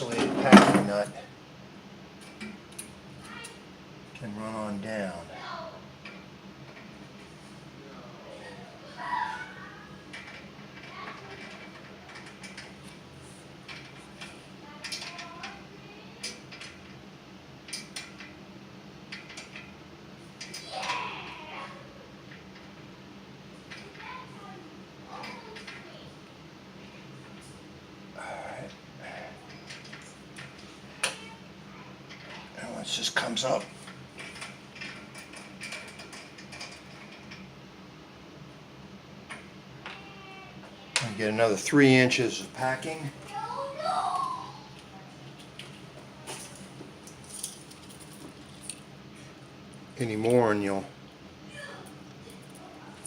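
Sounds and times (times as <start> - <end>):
faint steady hum: 0.0 - 53.0
small tools clicking on metal parts: 13.7 - 15.6.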